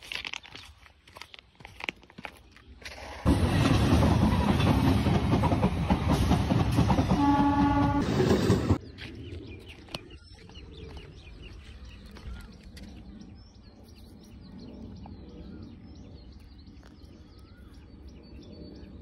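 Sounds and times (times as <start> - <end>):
small birds chirping: 8.8 - 19.0.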